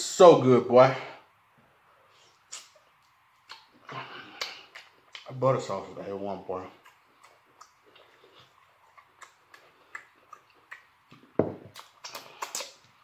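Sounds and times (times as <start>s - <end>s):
chewing and lip-smacking: 2.4s - 5.3s, 6.6s - 13.0s
soft mouth clicks: 2.5s - 3.7s, 4.4s - 5.3s, 6.8s - 13.0s
tableware knock: 11.4s - 11.7s.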